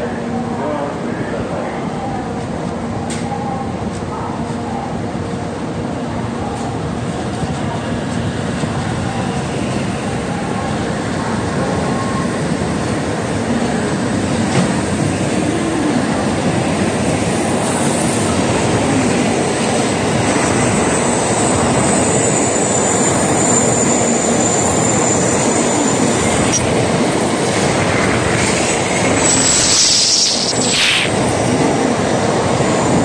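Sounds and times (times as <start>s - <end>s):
train rushing rumble: 0.0s - 33.0s
thin high whine: 28.4s - 31.3s
brief hiss: 29.3s - 31.2s.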